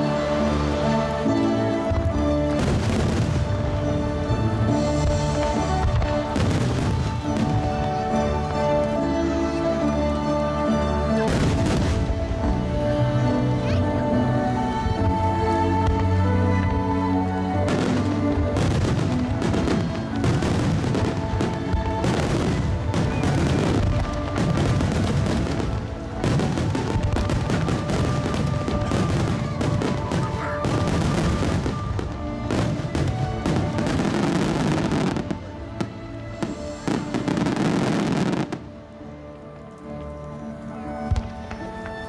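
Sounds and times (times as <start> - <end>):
music playing: 0.0 - 42.0
fireworks bursting: 2.0 - 9.6, 11.2 - 12.2, 17.6 - 38.8.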